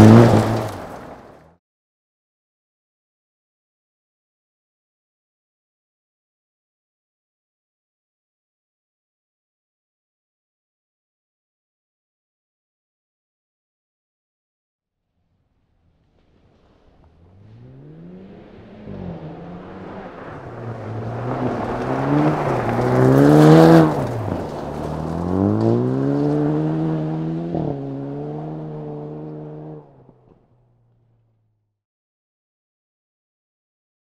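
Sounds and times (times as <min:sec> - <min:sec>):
car engine revving: 0:00.0 - 0:01.4, 0:16.0 - 0:31.6
tyres sliding on gravel: 0:00.0 - 0:01.4, 0:16.0 - 0:26.8.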